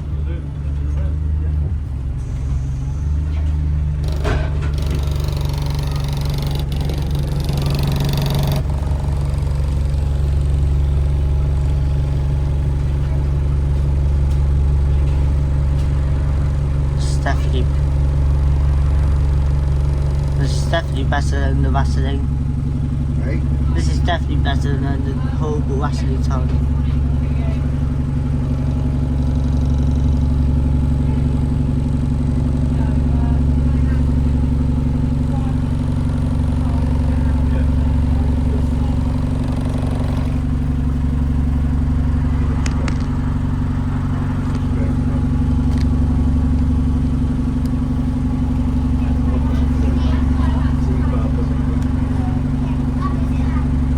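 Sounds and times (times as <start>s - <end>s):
bus diesel engine droning: 0.0s - 53.9s.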